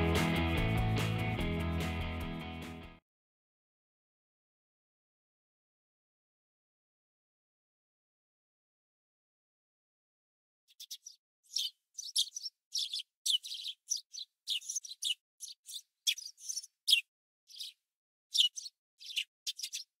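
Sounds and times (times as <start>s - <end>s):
small bird chirping: 10.7s - 20.0s.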